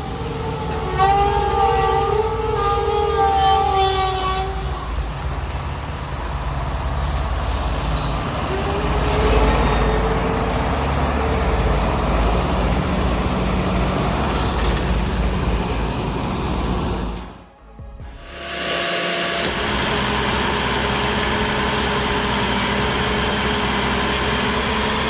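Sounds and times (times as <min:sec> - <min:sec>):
diesel engine rumbling: 0:00.0 - 0:25.0
multi-tone horn: 0:00.8 - 0:05.1, 0:17.5 - 0:20.1.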